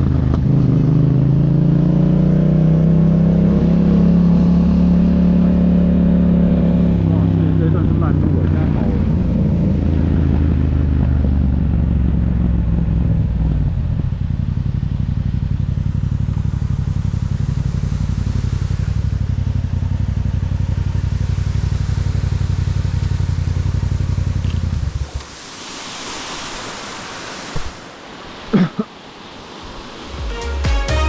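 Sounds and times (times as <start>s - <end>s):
motorcycle engine idling: 13.4s - 25.2s.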